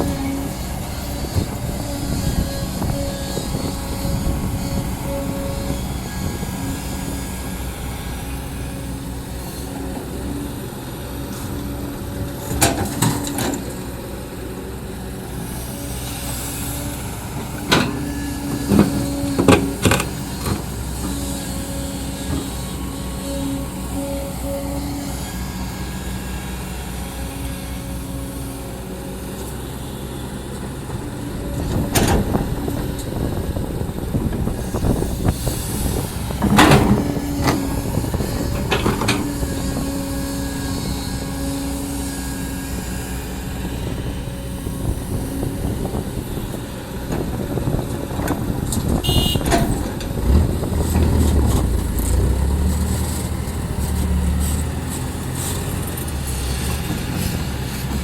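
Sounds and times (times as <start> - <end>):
hydraulic whine: 0.0 - 56.5
excavator diesel engine: 0.0 - 58.0.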